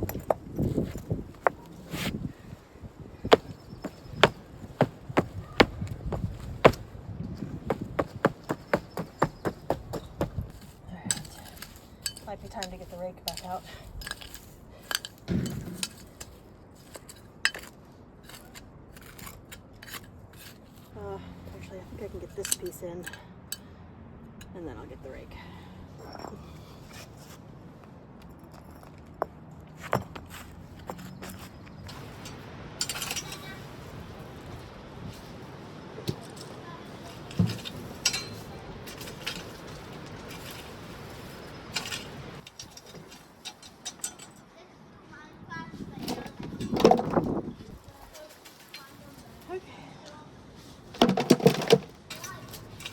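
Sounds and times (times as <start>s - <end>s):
bricks clinking and scraping: 0.0s - 2.2s, 3.2s - 20.9s, 26.0s - 27.4s, 28.2s - 33.8s, 36.0s - 44.5s, 45.9s - 47.5s, 50.8s - 52.9s
dull thump: 3.3s - 10.5s.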